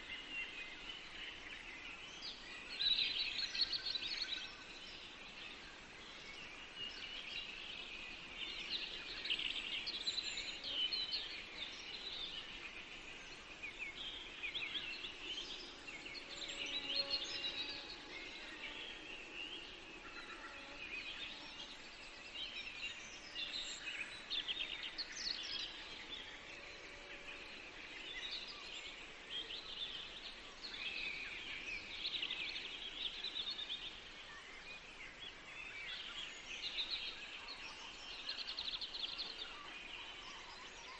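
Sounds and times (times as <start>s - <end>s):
faint forest background hiss: 0.0s - 40.9s
songbirds chirping and trilling: 0.0s - 40.9s.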